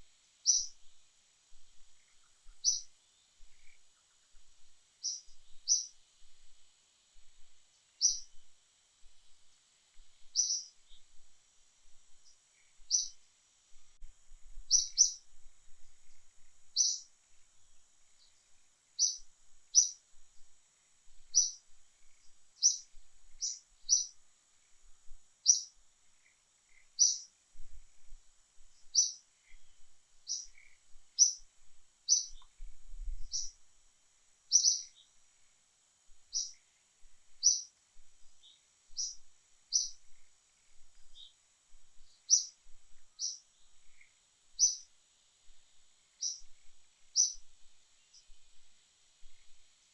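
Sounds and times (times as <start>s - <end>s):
faint high-pitched hiss: 0.0s - 49.9s
bird chirping: 0.4s - 0.9s, 1.7s - 4.4s, 5.0s - 6.0s, 8.0s - 8.4s, 10.3s - 11.1s, 12.2s - 13.2s, 14.6s - 15.2s, 16.8s - 17.1s, 19.0s - 20.0s, 21.3s - 24.2s, 25.4s - 27.3s, 28.8s - 31.5s, 32.1s - 33.6s, 34.5s - 35.1s, 36.3s - 36.6s, 37.4s - 37.7s, 38.4s - 41.4s, 42.0s - 44.9s, 46.2s - 48.4s.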